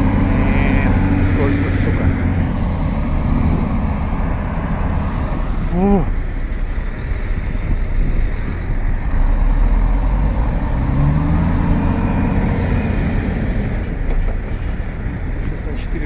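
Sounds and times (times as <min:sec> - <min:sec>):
diesel truck engine revving: 0:00.0 - 0:15.6.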